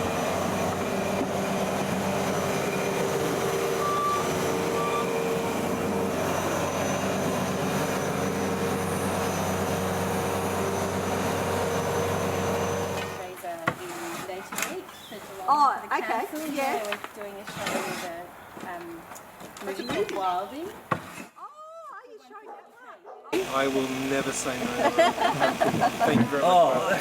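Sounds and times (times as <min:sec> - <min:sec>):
engine running: 0:00.0 - 0:13.3, 0:23.4 - 0:27.0.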